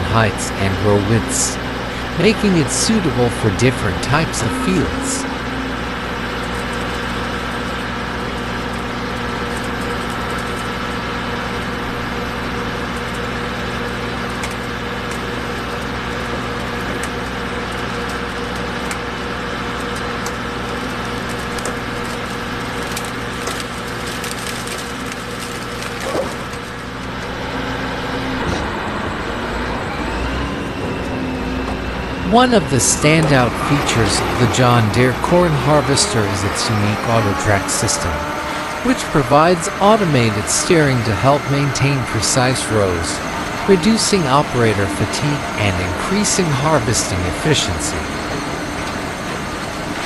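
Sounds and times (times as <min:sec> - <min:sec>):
combine harvester engine drone: 0:00.0 - 0:50.0
sharp cracks and snaps: 0:19.8 - 0:27.3.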